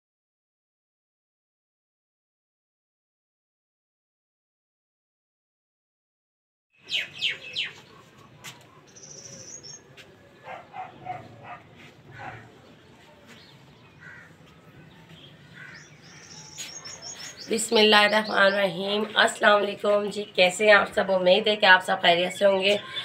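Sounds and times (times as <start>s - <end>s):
high bird chirps: 6.8s - 7.9s, 8.8s - 9.9s, 15.0s - 18.6s
birds calling: 6.8s - 21.0s.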